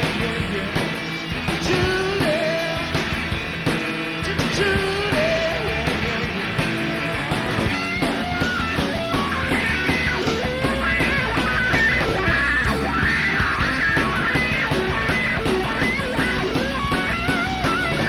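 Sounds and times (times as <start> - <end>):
bass guitar: 0.0 - 18.0
drums: 0.0 - 18.0
electric guitar: 0.0 - 18.0
lead guitar bending notes: 7.7 - 18.0.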